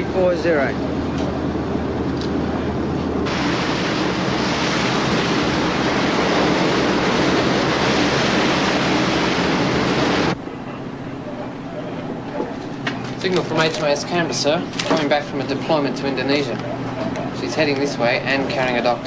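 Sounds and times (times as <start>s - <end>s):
boat engines humming: 0.0s - 19.0s
rushing water and spray: 3.2s - 10.4s.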